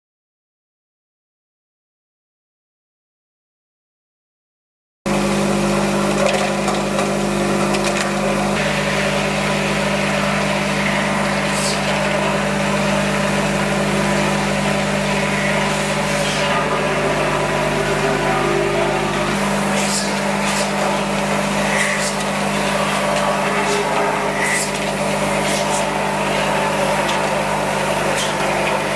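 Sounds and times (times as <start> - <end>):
vibratory bowl feeder humming: 5.1 - 28.9.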